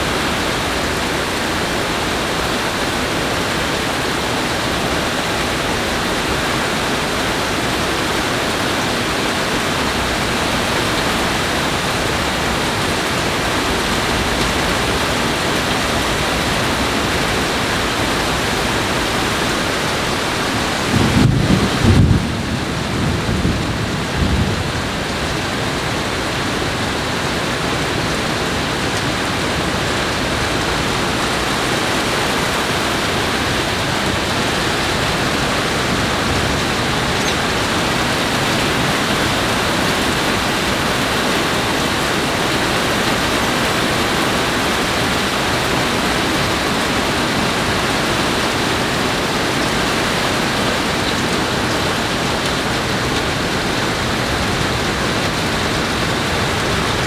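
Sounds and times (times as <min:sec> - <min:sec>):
heavy rain pouring: 0:00.0 - 0:57.0
thunder rumble: 0:19.4 - 0:26.0.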